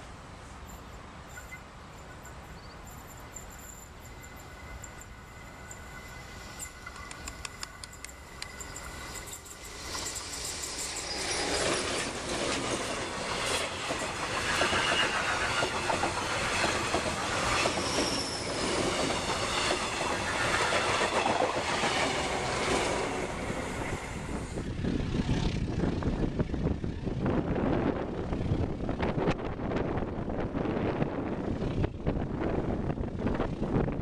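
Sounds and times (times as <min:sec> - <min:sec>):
electric train passing: 0:00.0 - 0:34.0
high wheel squeal: 0:02.2 - 0:12.3, 0:13.3 - 0:24.6.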